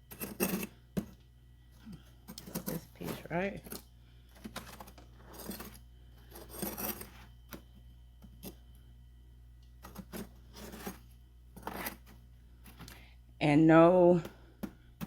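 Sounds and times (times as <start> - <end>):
ice clinking and scraping: 4.4 - 7.2.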